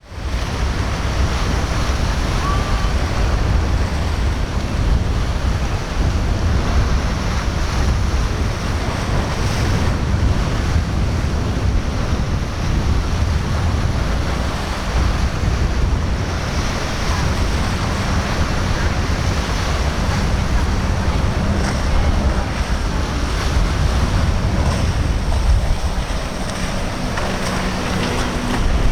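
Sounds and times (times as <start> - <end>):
breaking waves: 0.0 - 28.9
wind rumbling on microphone: 0.0 - 28.9.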